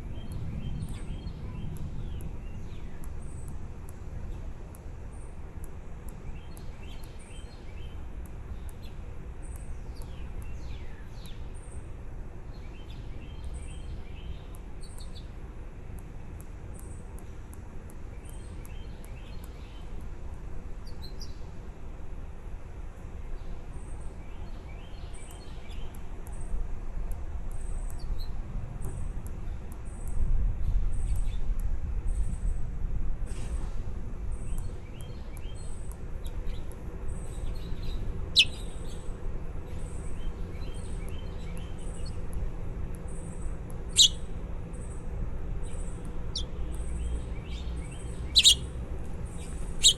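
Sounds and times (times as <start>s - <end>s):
steady low rumble: 0.0s - 6.9s
small birds chirping: 6.0s - 15.4s, 16.0s - 20.1s, 23.4s - 26.6s, 34.3s - 49.9s
very high short peeps: 48.4s - 48.6s.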